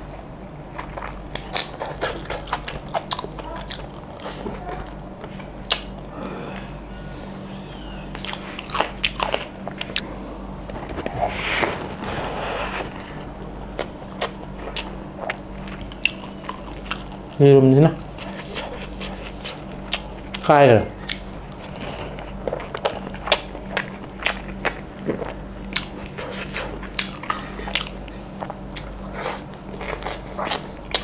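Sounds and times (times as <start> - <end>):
low hum: 0.0 - 31.0
wet chewing and lip-smacking: 0.2 - 6.1, 8.2 - 10.0, 13.8 - 17.4, 18.0 - 31.0.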